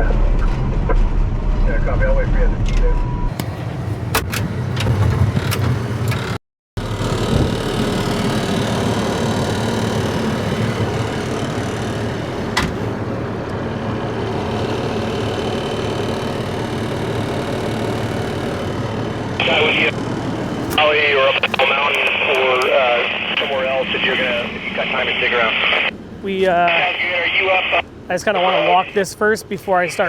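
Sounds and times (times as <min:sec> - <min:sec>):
engine idling: 0:06.8 - 0:30.0.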